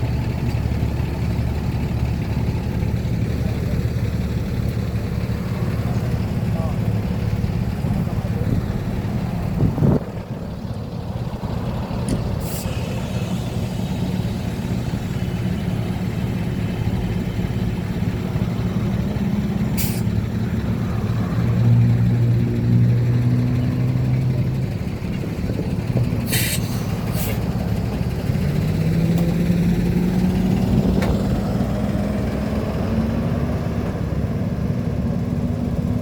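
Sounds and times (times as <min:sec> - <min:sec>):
heavy engine hum: 0:00.0 - 0:36.0
vehicle engines running: 0:00.0 - 0:36.0
brief hisses: 0:19.8 - 0:20.1.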